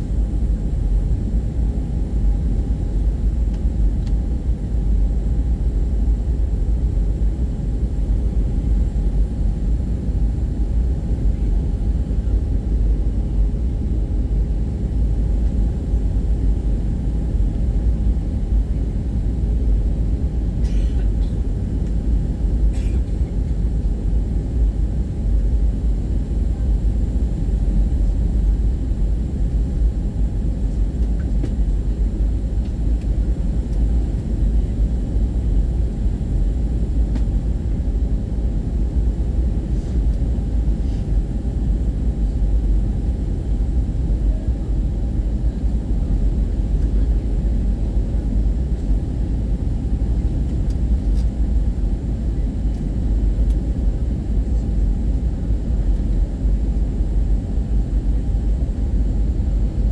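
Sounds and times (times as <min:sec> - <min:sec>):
airliner cabin rumble: 0:00.0 - 0:59.9.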